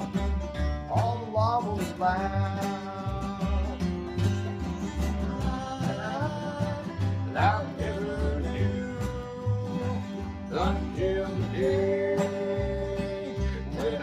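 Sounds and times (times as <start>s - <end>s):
bluegrass band playing: 0.0s - 14.0s
pulsing bass line: 0.0s - 14.0s.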